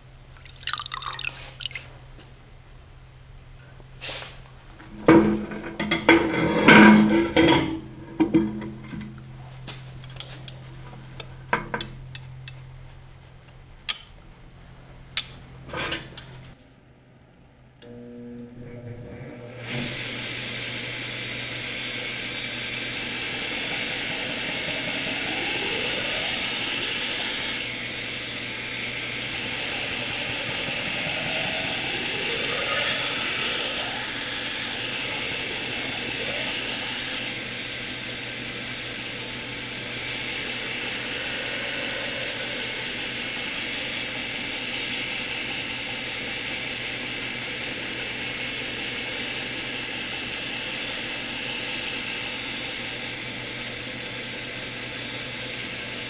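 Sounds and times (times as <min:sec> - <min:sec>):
steel grinding against belt: 0:04.3 - 0:16.6, 0:29.1 - 0:37.2
belt grinder running: 0:04.8 - 0:12.6.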